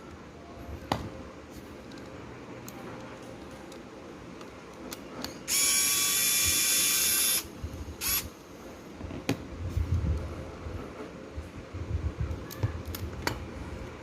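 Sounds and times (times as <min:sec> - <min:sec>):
small electric motor whirring: 0:05.5 - 0:08.3.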